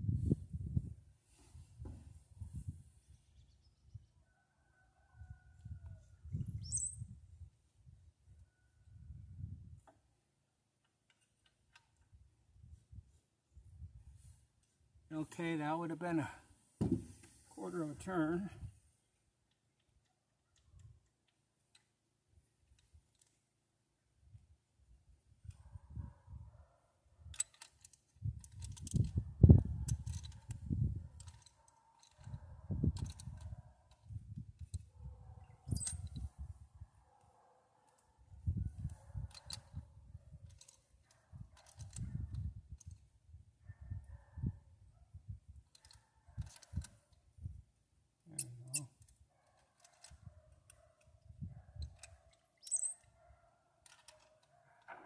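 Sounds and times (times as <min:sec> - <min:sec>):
wind gusting over microphone: 0:00.0 - 0:01.0, 0:05.6 - 0:07.5, 0:28.2 - 0:31.2, 0:41.9 - 0:42.8
metallic clicks of hand tools: 0:51.9 - 0:53.1
short squeak: 0:52.6 - 0:53.1.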